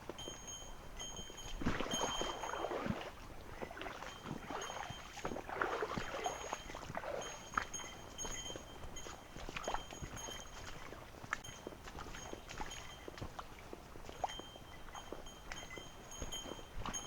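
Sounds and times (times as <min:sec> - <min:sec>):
water sloshing and splashing: 0:01.4 - 0:12.8.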